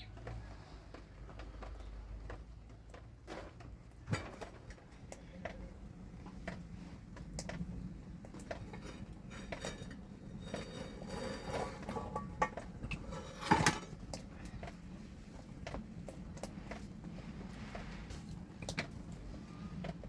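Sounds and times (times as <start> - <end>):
pots and utensils clinking: 8.4 - 14.7.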